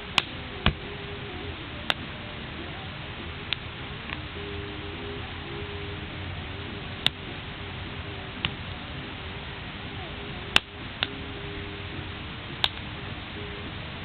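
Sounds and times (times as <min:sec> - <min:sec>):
wood fire hissing: 0:00.0 - 0:14.0
wood crackling pops: 0:00.1 - 0:00.8, 0:12.6 - 0:12.9.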